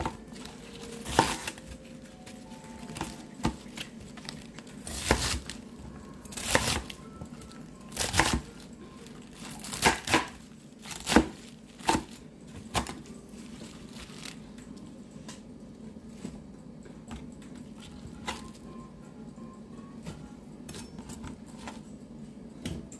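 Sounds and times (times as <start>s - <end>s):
rustling and tearing: 13.4s - 14.4s.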